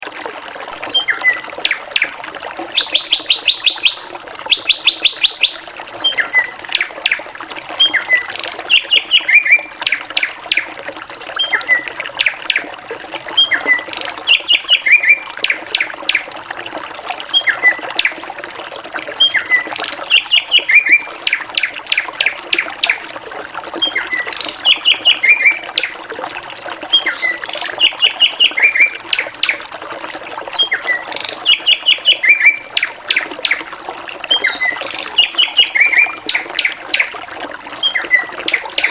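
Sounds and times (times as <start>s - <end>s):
bird chirping song: 2.7s - 7.2s, 7.8s - 10.3s, 13.3s - 15.2s, 23.8s - 25.6s, 26.9s - 29.6s, 30.6s - 32.9s, 34.3s - 37.1s, 37.8s - 38.9s.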